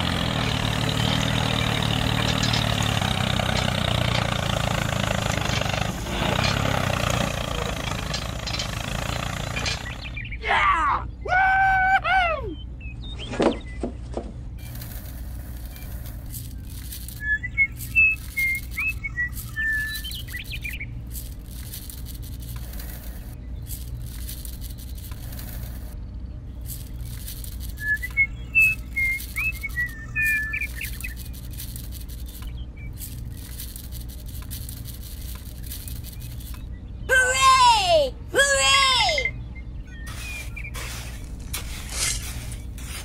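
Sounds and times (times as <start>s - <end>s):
small birds chirping and whistling: 0.1s - 43.0s
steady low hum: 12.3s - 37.3s.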